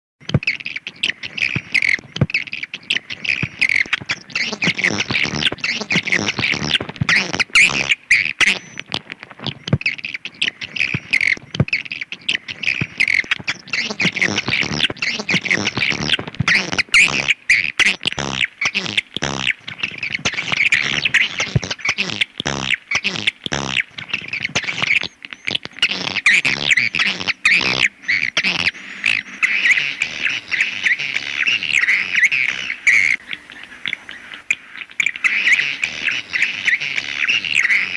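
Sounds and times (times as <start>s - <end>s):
swiftlets chirping and twittering: 0.4s - 37.9s.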